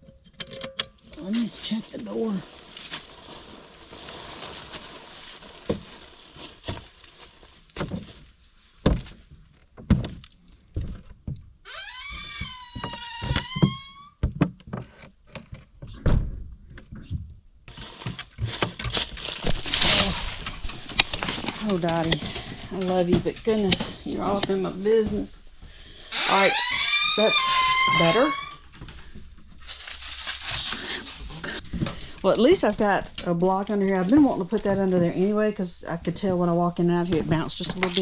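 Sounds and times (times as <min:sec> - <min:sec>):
door squeaking: 0:11.7 - 0:14.2, 0:26.1 - 0:28.7.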